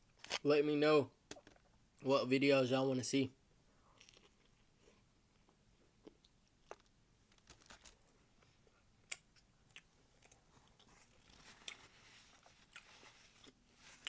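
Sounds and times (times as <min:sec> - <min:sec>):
person chewing food: 0:04.0 - 0:14.0
soft crunches: 0:09.1 - 0:14.0.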